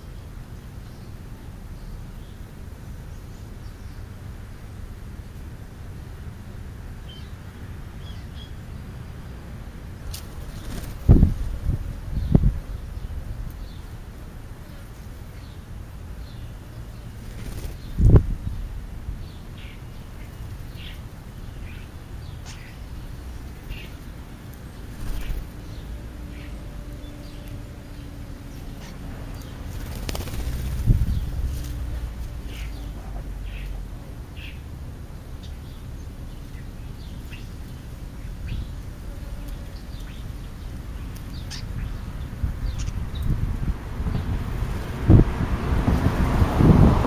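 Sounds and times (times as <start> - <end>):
birds chirping: 7.0 - 43.4
wind rumble on microphone: 9.6 - 14.1, 16.9 - 19.5, 24.0 - 34.0, 39.7 - 47.0.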